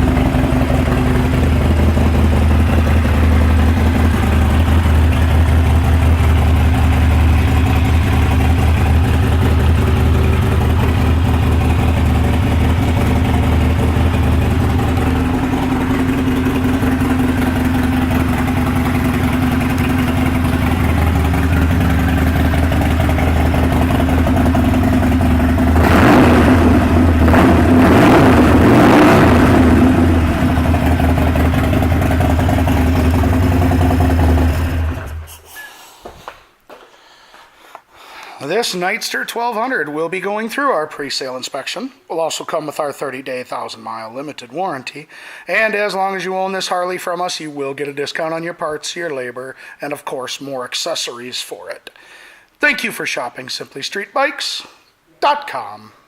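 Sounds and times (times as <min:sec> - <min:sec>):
motorcycle engine idling: 0:00.0 - 0:27.7, 0:29.3 - 0:35.3
motorcycle throttle blips: 0:00.0 - 0:35.2.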